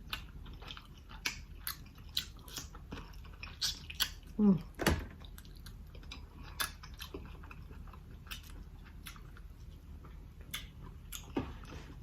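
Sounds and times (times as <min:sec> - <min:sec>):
wet mouth chewing clicks: 0:00.1 - 0:04.2.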